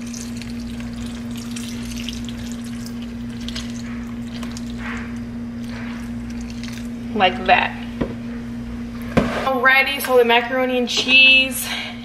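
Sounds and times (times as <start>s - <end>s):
milk pouring into a pan: 0.0s - 4.8s, 6.0s - 7.0s
low electrical hum: 0.0s - 12.0s.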